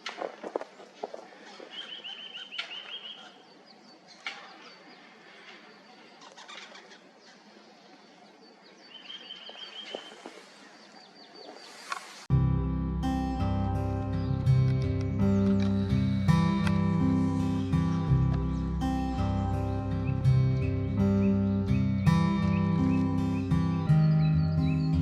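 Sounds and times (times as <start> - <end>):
songbird trills: 0.6 - 12.1, 13.8 - 25.0
high bird call notes: 1.4 - 7.5
acoustic guitar music: 12.3 - 25.0.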